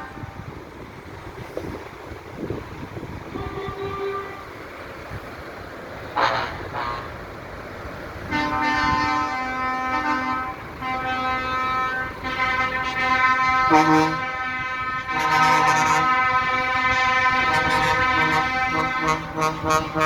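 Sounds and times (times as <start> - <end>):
truck horns blasting: 0.0 - 0.7, 3.1 - 4.9, 6.0 - 7.4, 8.2 - 20.0
faint horn toot: 3.3 - 4.5.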